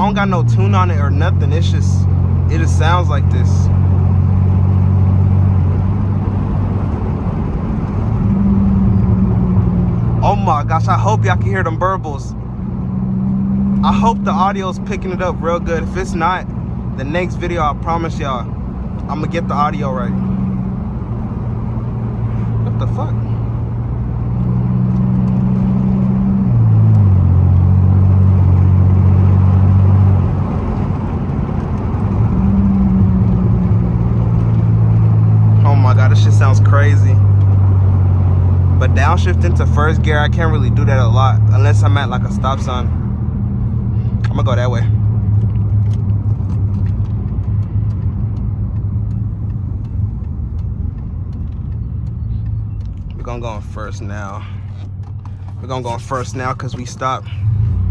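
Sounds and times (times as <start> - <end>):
loud unmuffled car engine: 0.0 - 57.9.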